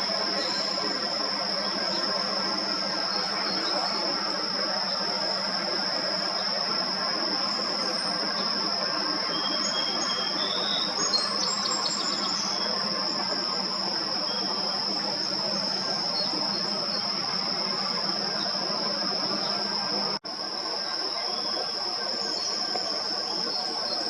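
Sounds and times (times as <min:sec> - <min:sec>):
high-pitched insect trill: 0:00.0 - 0:24.0.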